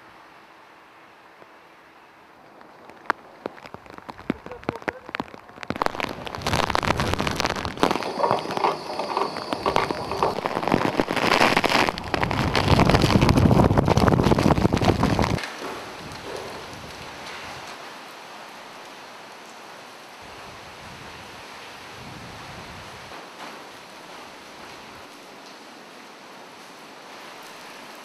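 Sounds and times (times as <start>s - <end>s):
heavy rain downpour: 0.0s - 28.0s
raindrops ticking: 2.4s - 17.8s.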